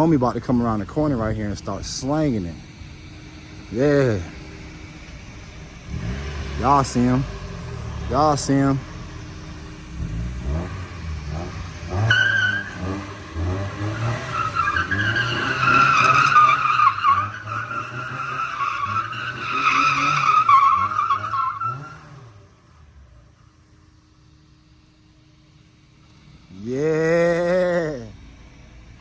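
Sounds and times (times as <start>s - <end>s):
car engine revving hard: 3.2s - 22.5s
tyres squealing: 11.9s - 22.0s.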